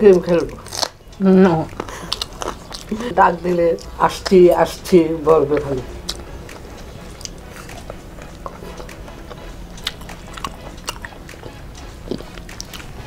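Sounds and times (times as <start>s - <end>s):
people chewing: 0.0s - 13.0s
wet mouth clicks and smacks: 1.7s - 3.0s.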